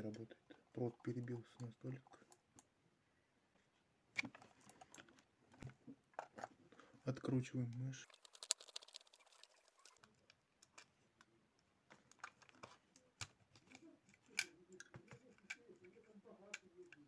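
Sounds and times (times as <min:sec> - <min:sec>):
small plastic parts clicking: 0:07.7 - 0:17.0.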